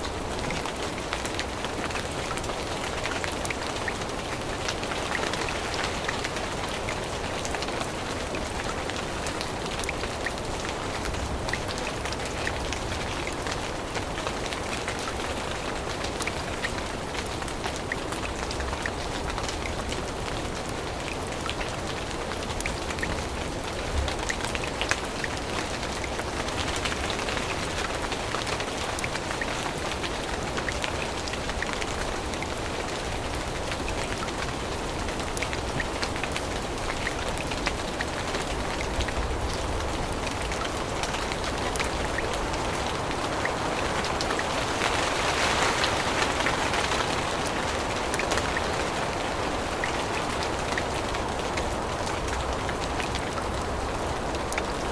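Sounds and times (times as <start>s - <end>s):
rain falling on leaves: 0.0s - 54.9s.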